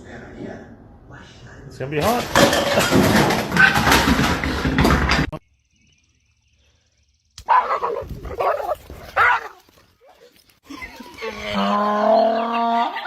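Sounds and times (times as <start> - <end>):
dog barking: 7.4 - 10.3.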